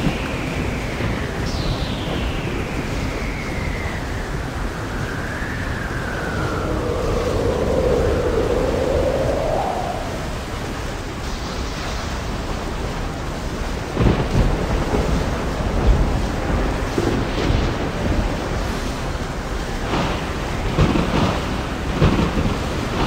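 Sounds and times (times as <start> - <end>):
steady rain: 0.0 - 23.0
thunder crash: 0.0 - 23.0
wind: 0.0 - 23.0
gliding tone: 0.9 - 11.4.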